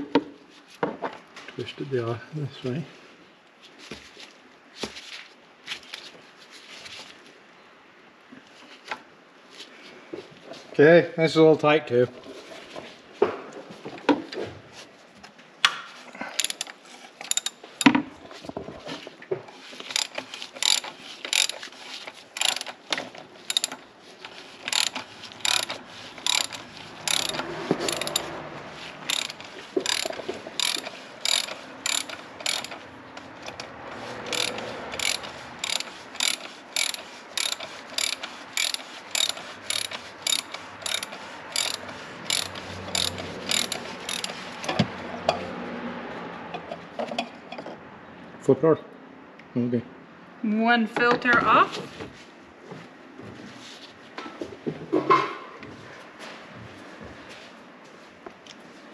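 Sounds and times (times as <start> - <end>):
socket ratchet clicking: 16.4 - 17.6, 19.9 - 21.6, 22.4 - 22.8, 23.5 - 23.8, 24.7 - 28.3, 29.0 - 32.8, 34.3 - 44.5.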